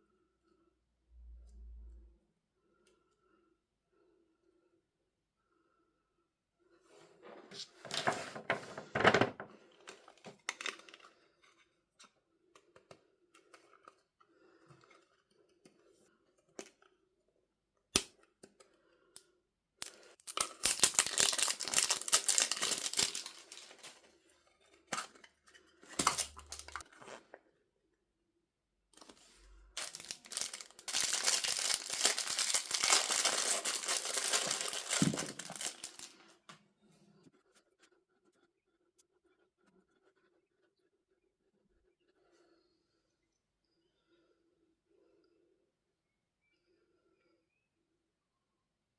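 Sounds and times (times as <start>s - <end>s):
packaging torn open and crinkled: 19.8s - 24.0s, 25.9s - 26.8s, 29.8s - 36.2s.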